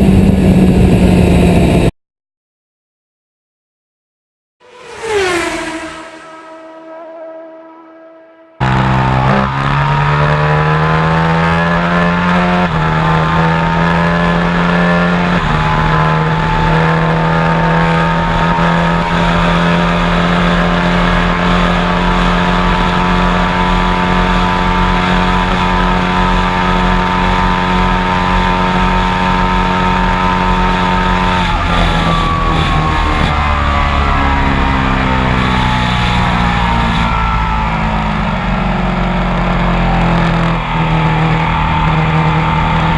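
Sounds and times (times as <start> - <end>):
motorcycle engine accelerating: 4.6 - 42.9.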